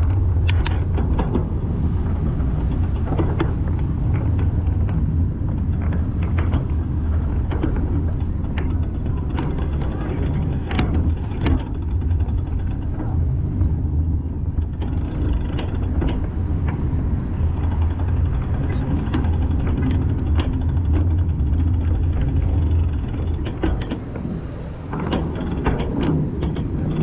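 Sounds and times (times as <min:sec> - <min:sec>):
car low rumble: 0:00.0 - 0:27.0.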